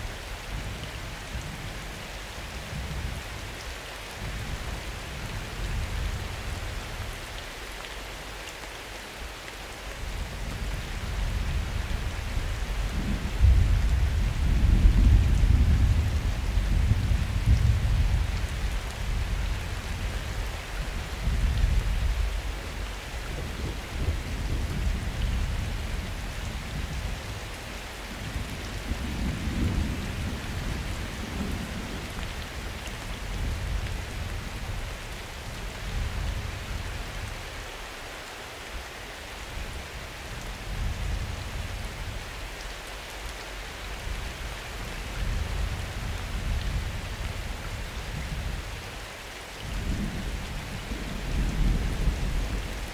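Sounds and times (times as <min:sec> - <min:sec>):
steady rain: 0:00.0 - 0:52.9.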